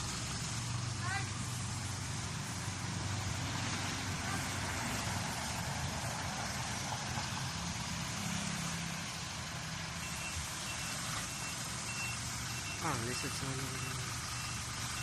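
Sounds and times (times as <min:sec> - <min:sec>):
truck engine running: 0:00.0 - 0:15.0
reversing beeper: 0:10.0 - 0:15.0.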